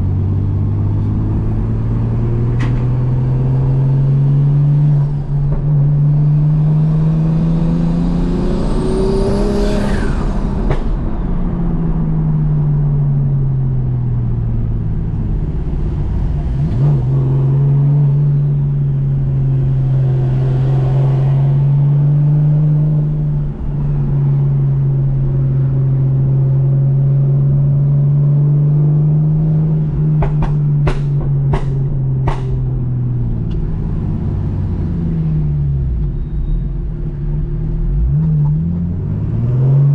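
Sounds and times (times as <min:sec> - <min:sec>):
car engine revving: 0:00.0 - 0:12.4.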